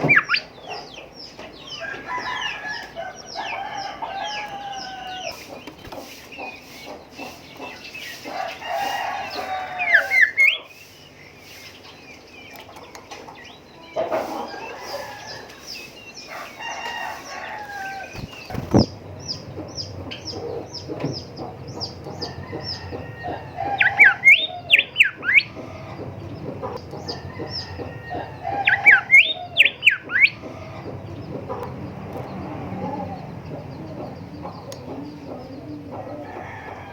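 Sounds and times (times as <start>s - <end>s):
bird whistling song: 0.0s - 0.6s, 9.4s - 12.2s, 21.8s - 25.6s, 27.2s - 30.4s
other bird calls: 0.0s - 36.9s.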